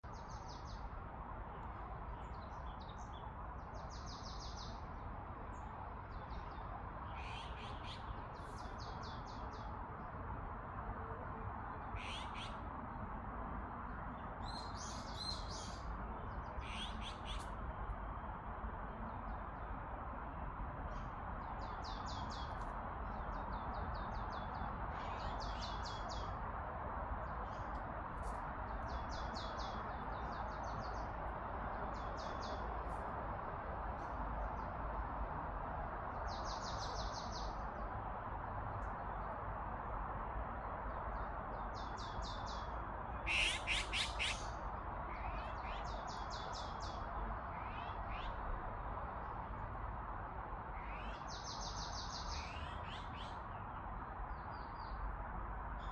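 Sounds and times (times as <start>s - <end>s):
birds chipping and calling: 43.2s - 46.8s.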